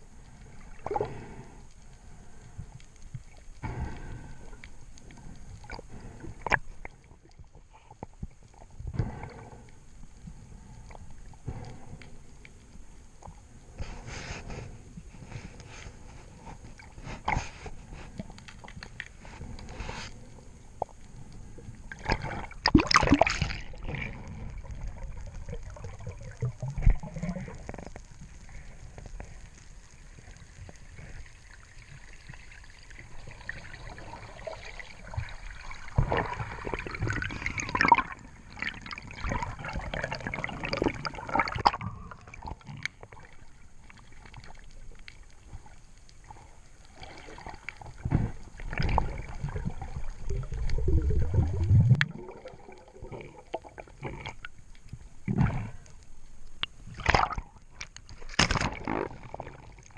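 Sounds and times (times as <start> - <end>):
water sloshing and gurgling: 0.0 - 59.9.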